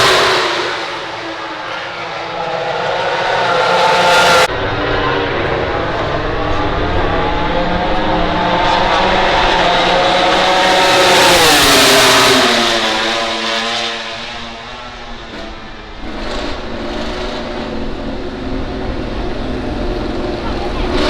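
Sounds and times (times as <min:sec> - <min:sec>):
race motorcycle passing by: 0:03.0 - 0:17.9.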